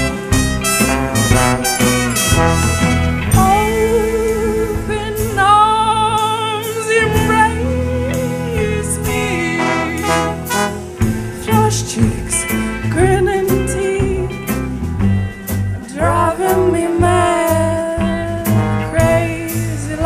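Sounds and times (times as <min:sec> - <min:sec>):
pitch-bending melody: 0:00.0 - 0:06.4, 0:07.0 - 0:14.4
drums: 0:00.0 - 0:20.0
pulsing bass line: 0:00.0 - 0:20.0.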